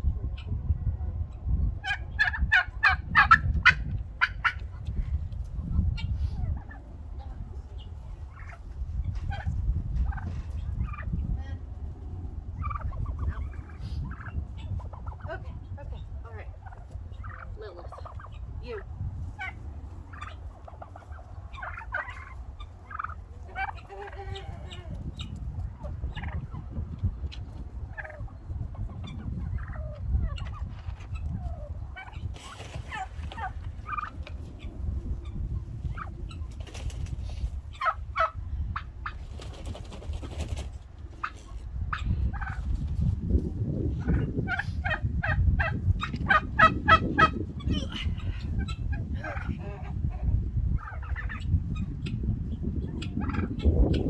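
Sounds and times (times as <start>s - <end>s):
turkey hens calling: 0.3s - 0.6s, 1.3s - 4.9s, 5.5s - 11.2s, 11.9s - 42.8s, 44.0s - 54.0s.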